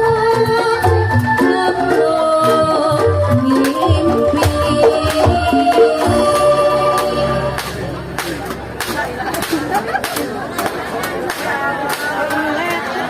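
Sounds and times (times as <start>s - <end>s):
person singing: 0.0s - 7.6s
sustained pitched instruments: 0.0s - 12.0s
drum and percussion strikes: 0.0s - 12.8s.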